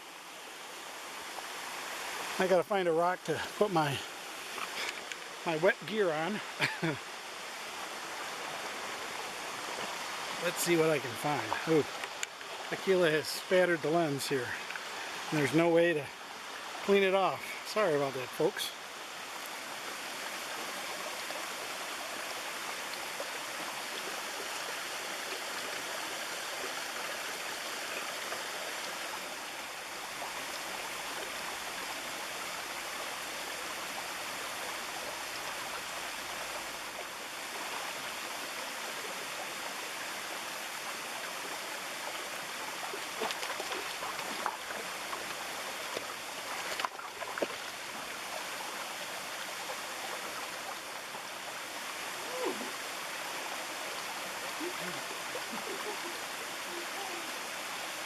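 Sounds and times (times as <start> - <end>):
stream rushing over rocks: 0.0 - 58.0
faint water splashes: 3.2 - 58.0.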